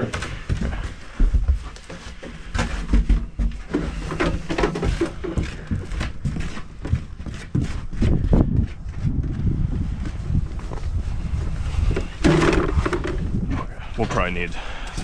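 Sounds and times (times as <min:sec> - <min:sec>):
footsteps: 0:00.0 - 0:15.0
knocks and thumps of heavy rack: 0:12.0 - 0:13.6.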